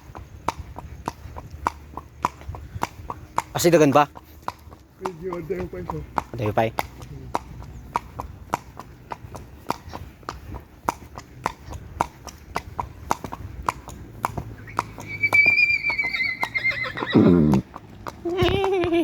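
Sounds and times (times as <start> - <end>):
horse hooves clip-clopping: 0.0 - 19.0
horse whinnying: 14.6 - 18.6.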